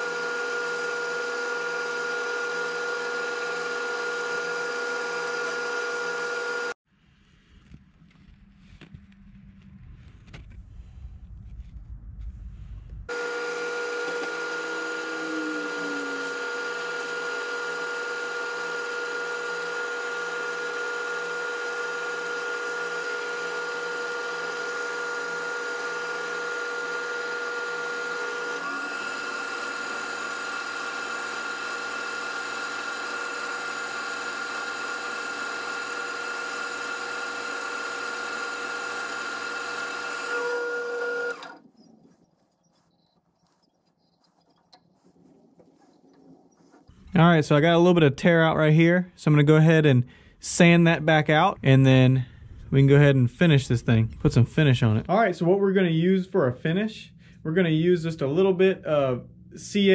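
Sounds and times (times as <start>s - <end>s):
sandpaper on spinning wood: 0.0s - 6.7s, 13.4s - 25.4s
wood lathe motor whine: 0.0s - 6.8s, 13.1s - 42.2s
low rumble: 7.0s - 13.1s, 51.6s - 55.1s.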